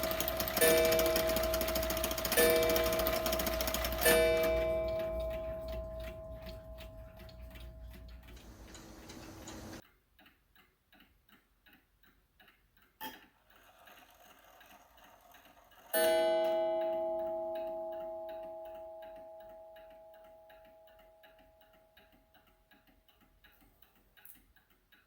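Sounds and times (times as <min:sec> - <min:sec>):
clock strike note ringing: 0:00.0 - 0:09.8, 0:15.9 - 0:21.1
clock ticking: 0:00.0 - 0:25.0.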